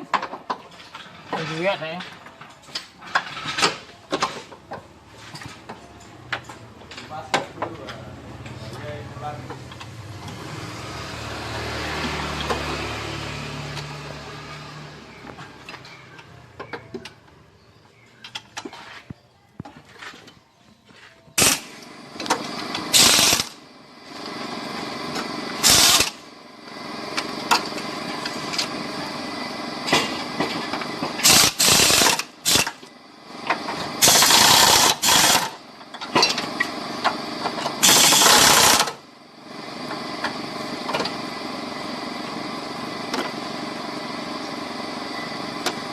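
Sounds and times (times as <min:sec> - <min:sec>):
engine running: 0:07.7 - 0:17.4, 0:21.4 - 0:45.9
power tool bursts: 0:21.4 - 0:23.6, 0:25.6 - 0:26.2, 0:31.2 - 0:32.8, 0:34.0 - 0:35.6, 0:37.8 - 0:39.0.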